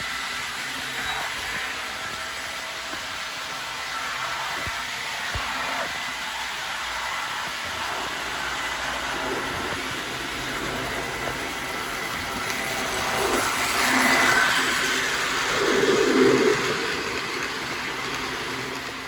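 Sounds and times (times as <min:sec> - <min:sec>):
model train whirring on track: 0:00.0 - 0:19.0.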